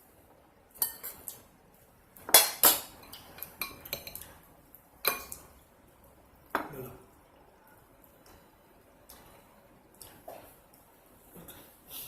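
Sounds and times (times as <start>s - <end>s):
cutlery clinking and scraping on plate: 0.8s - 1.4s.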